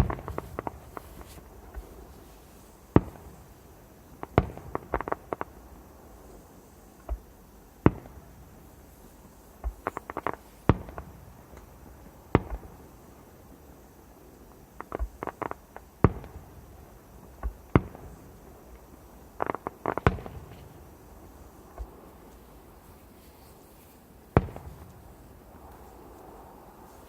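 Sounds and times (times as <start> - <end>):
small firework pops: 0.0 - 2.0, 2.9 - 3.5, 4.2 - 5.6, 7.0 - 8.4, 9.6 - 12.9, 14.7 - 16.6, 17.2 - 21.0, 21.6 - 22.5, 24.3 - 26.0
firework bangs: 0.0 - 2.2, 2.9 - 5.8, 9.6 - 12.9, 14.8 - 22.3, 24.3 - 25.8.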